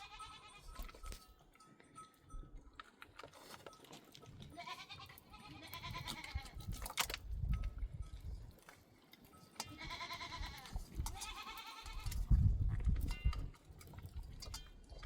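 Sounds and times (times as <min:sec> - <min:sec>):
goats bleating: 0:00.0 - 0:00.8, 0:04.4 - 0:06.6, 0:09.6 - 0:12.2.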